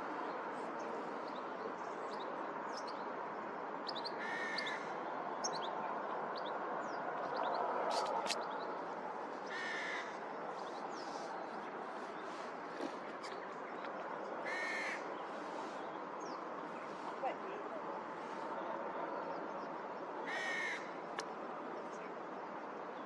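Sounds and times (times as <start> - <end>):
crow cawing: 4.2 - 4.8, 9.5 - 10.2, 14.4 - 15.0, 20.3 - 20.9
small birds chirping: 5.4 - 22.4.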